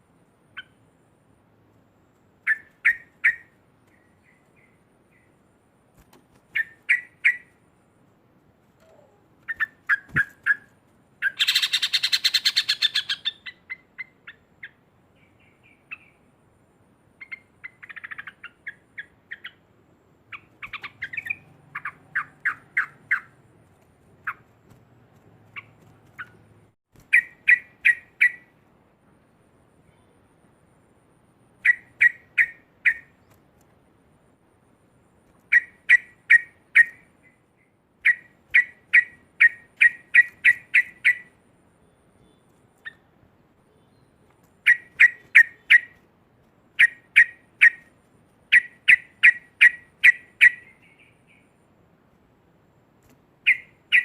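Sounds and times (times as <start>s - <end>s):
bird chattering call: 11.2s - 14.1s, 53.5s - 54.0s.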